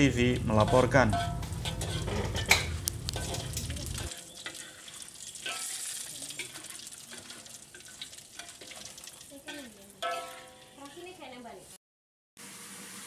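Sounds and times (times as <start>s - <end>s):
food sizzling in hot oil: 0.0s - 11.8s, 12.4s - 13.0s
spatula clinking against a wok: 0.5s - 8.8s, 9.4s - 11.0s.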